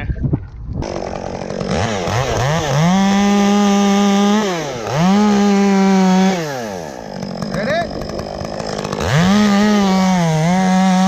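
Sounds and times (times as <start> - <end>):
chainsaw revving: 0.8 - 11.0.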